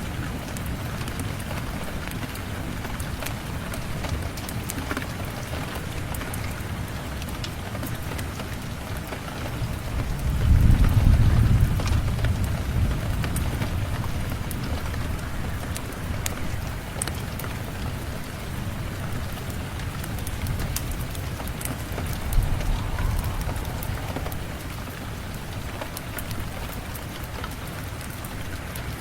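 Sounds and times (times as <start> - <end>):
steady rain with ticks: 0.0 - 29.0
low rumble of thunder: 9.4 - 16.9, 17.6 - 28.8.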